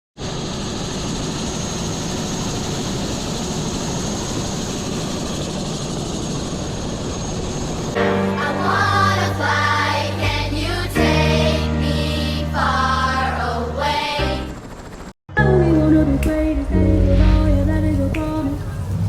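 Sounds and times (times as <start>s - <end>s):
helicopter engine and rotor: 0.2s - 8.0s, 13.5s - 15.2s
music with singing: 15.3s - 19.0s.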